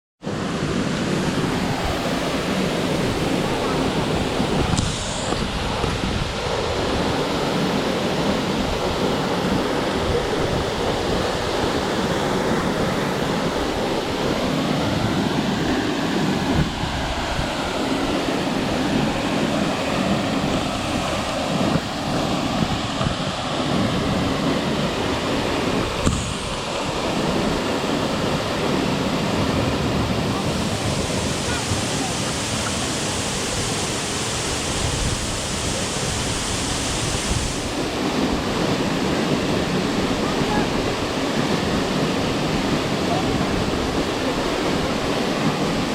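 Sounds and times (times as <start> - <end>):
waterfall rushing: 0.3 - 45.9.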